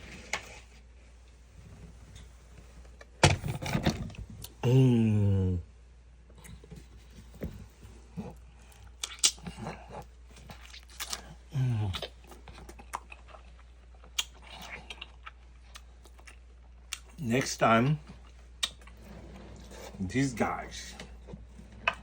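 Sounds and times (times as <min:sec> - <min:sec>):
person humming: 0:04.6 - 0:05.6
wet biting and chewing: 0:08.1 - 0:17.2, 0:18.2 - 0:19.0.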